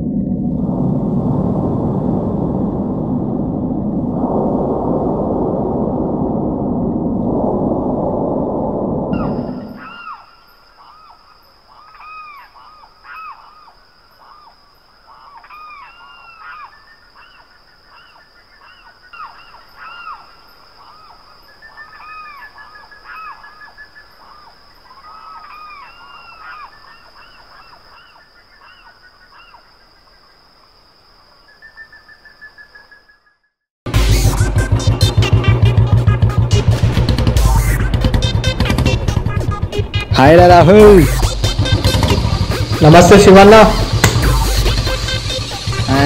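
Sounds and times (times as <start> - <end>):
bird trilling rapidly: 9.1 - 13.7
birds calling: 9.2 - 29.9
steady high-pitched whine: 40.2 - 46.0.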